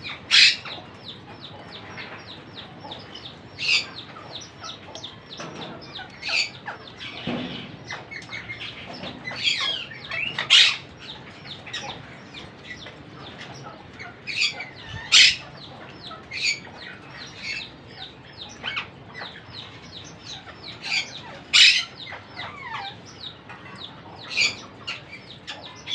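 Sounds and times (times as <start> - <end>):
parakeets chirping: 0.0 - 25.9.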